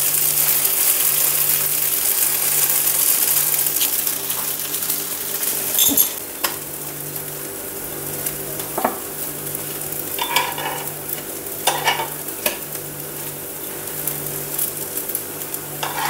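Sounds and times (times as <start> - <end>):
pancakes sizzling in a pan: 0.0 - 16.0
metal spatula scraping a pan: 15.8 - 16.0.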